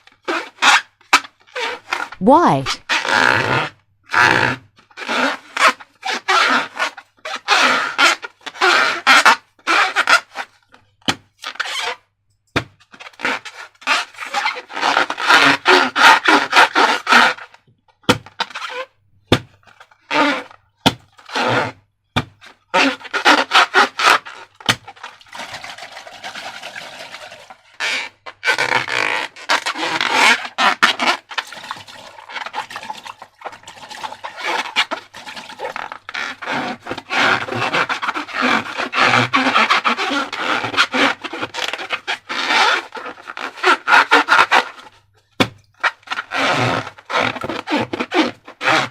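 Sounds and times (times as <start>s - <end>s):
slime squelching and scraping: 23.0s - 48.8s.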